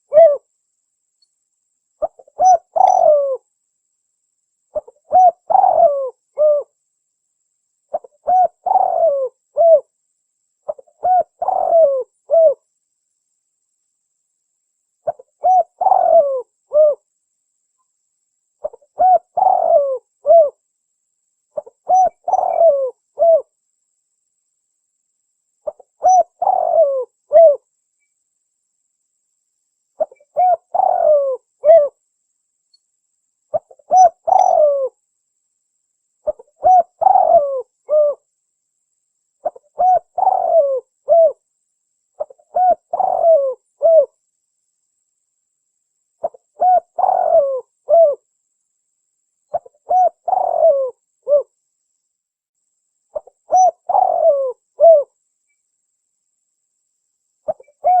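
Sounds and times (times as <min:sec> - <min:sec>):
dove cooing: 0:00.0 - 0:00.5, 0:02.0 - 0:03.4, 0:04.7 - 0:06.8, 0:07.9 - 0:09.9, 0:10.7 - 0:12.7, 0:15.0 - 0:17.0, 0:18.6 - 0:20.6, 0:21.6 - 0:23.5, 0:25.6 - 0:27.6, 0:30.0 - 0:32.0, 0:33.5 - 0:35.0, 0:36.2 - 0:38.3, 0:39.4 - 0:41.4, 0:42.2 - 0:44.2, 0:46.2 - 0:48.2, 0:49.5 - 0:51.5, 0:53.2 - 0:55.1, 0:57.5 - 0:58.0.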